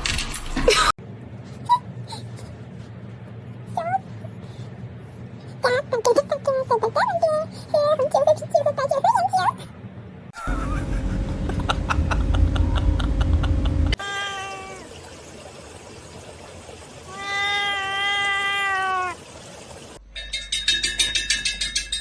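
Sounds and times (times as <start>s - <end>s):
loud low rumble: 10.4s - 14.0s
cat meowing: 14.0s - 14.9s, 17.1s - 19.2s.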